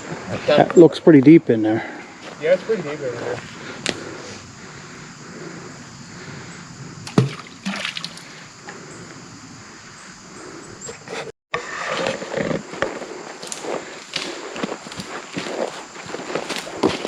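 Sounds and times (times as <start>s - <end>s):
creek water trickling: 7.0s - 8.8s
footsteps on loose rocks: 12.1s - 17.0s.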